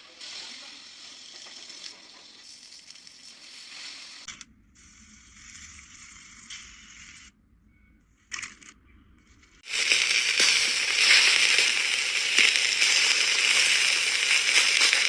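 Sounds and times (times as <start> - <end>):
meat sizzling: 0.0 - 4.3, 9.6 - 15.0.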